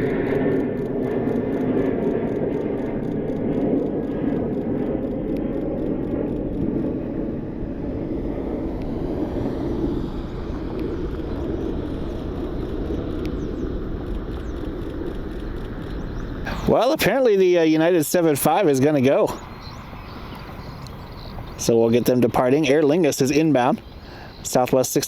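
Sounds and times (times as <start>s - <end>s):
jet engines low rumble: 0.0s - 25.0s.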